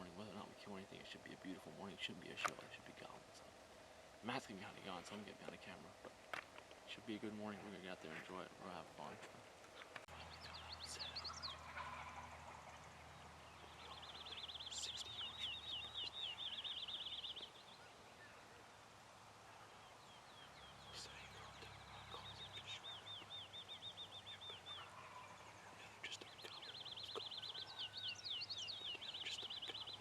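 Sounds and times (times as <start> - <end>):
faint low hum: 0.0 - 30.0
songbird trilling: 10.1 - 18.4, 19.8 - 30.0.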